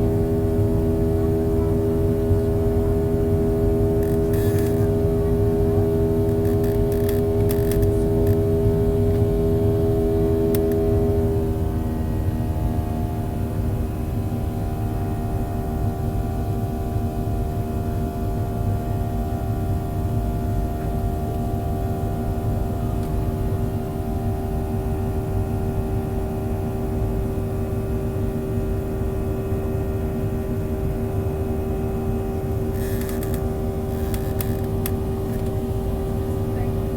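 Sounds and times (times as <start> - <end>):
jet engine rumble in cabin: 0.0 - 36.9.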